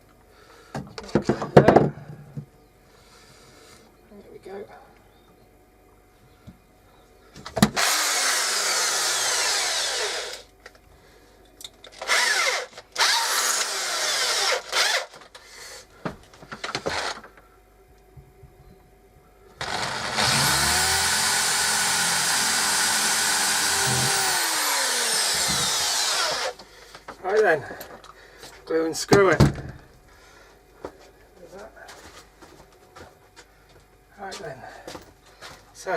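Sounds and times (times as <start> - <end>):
power drill boring through wood: 7.8 - 10.5, 12.0 - 15.2, 16.8 - 17.2, 19.6 - 26.6.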